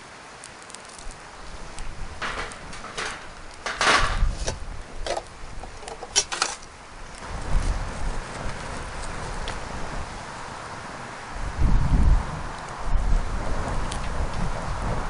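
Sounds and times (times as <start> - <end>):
rustling: 0.4 - 9.7.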